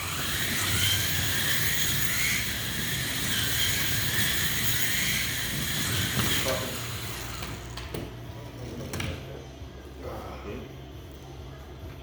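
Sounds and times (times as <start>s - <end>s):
slot car motors whining: 0.0s - 8.1s.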